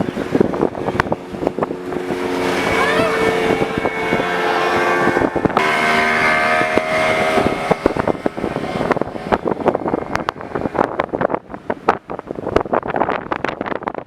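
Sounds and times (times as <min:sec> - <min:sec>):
motorboat engine running: 0:00.0 - 0:14.0
wind on microphone: 0:00.0 - 0:14.0.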